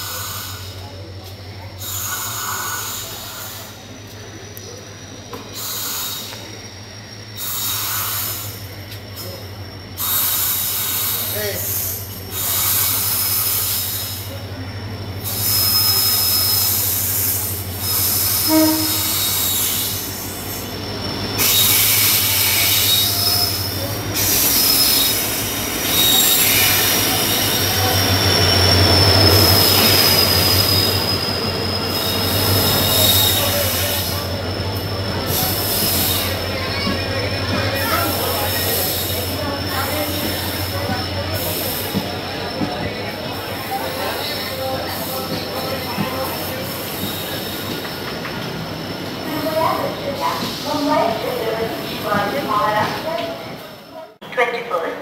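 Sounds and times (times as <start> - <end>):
train wheels squealing: 0.0 - 54.0
train coaches rolling: 0.0 - 55.0
locomotive engine droning: 11.2 - 52.3.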